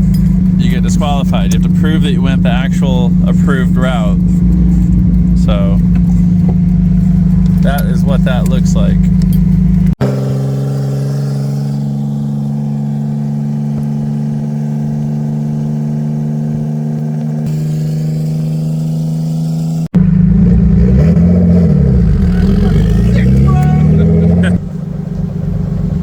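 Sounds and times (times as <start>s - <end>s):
vehicle engine droning: 0.0s - 26.0s.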